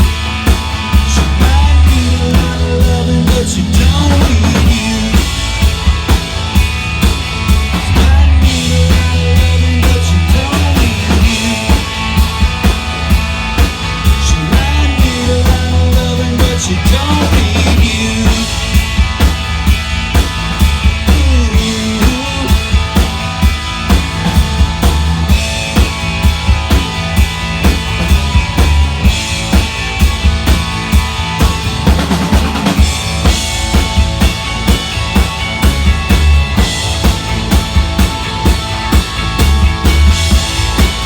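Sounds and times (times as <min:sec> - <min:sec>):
bass: 0:00.0 - 0:41.0
drum kit beat: 0:00.0 - 0:41.0
guitar bent notes: 0:22.6 - 0:41.0.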